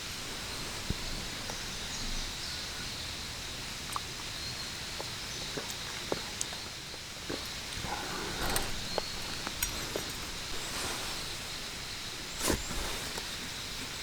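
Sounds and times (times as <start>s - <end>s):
steady hiss: 0.0s - 5.4s, 6.2s - 14.0s
small ticks and crackles: 0.0s - 14.0s.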